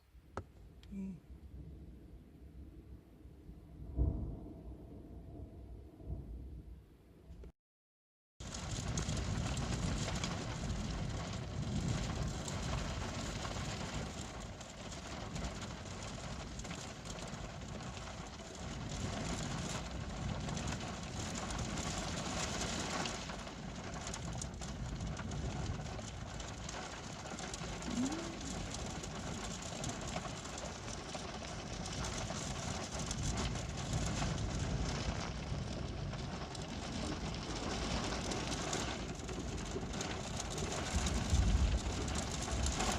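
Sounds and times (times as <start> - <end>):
low thunder rumble: 1.3 - 7.3, 8.4 - 42.9
heavy rain hissing: 18.4 - 42.9.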